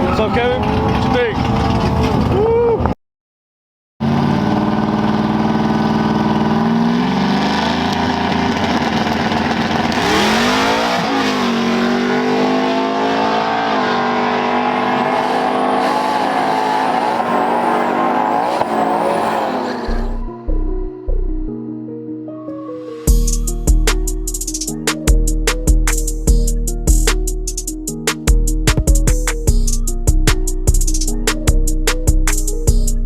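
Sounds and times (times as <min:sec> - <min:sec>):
race engine accelerating: 0:04.0 - 0:20.2.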